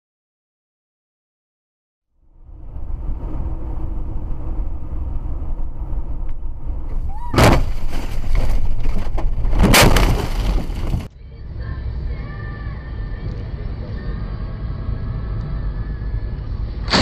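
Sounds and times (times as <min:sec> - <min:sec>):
car engine and road rumble: 0:02.2 - 0:17.0
loud crashing bangs: 0:07.0 - 0:11.1.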